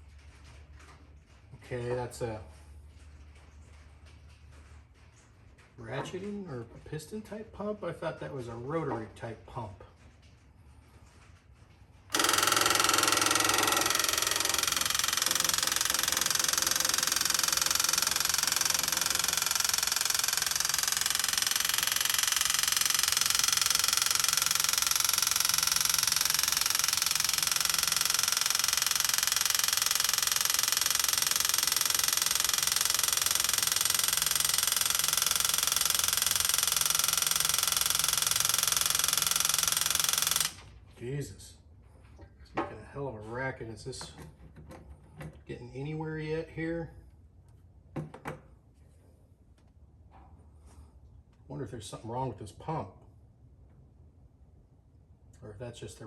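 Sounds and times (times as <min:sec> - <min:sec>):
electric fuel pump rattling: 0:09.2 - 0:40.8.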